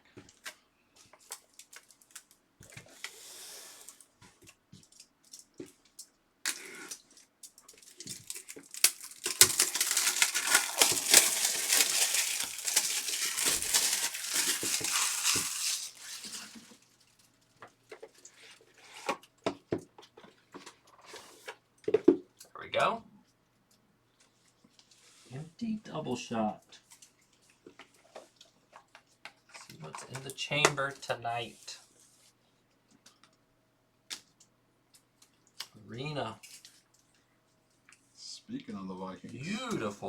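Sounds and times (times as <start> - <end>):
plastic wrapping crinkling: 0.3 - 2.4, 4.8 - 19.0.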